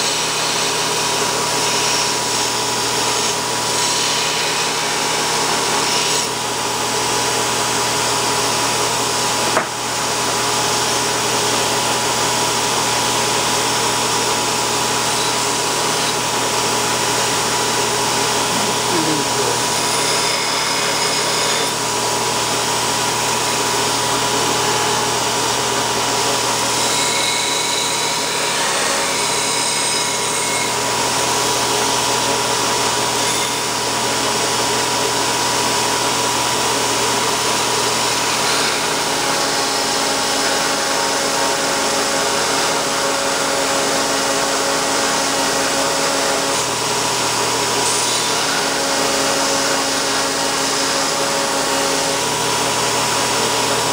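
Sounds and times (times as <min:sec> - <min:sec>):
belt grinder grinding: 0:14.1 - 0:21.8.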